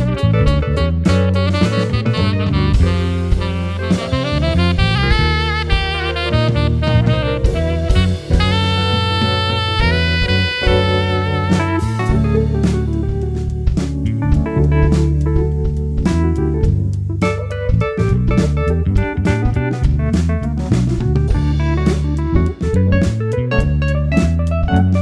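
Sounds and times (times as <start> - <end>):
lead melody line: 0.0 - 17.4
bass: 0.0 - 25.0
drums: 0.0 - 25.0.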